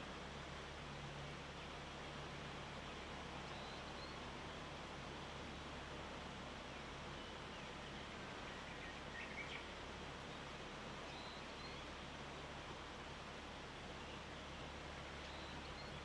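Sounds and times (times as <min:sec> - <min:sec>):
faint bird chirps: 0:03.5 - 0:04.2, 0:15.2 - 0:16.0.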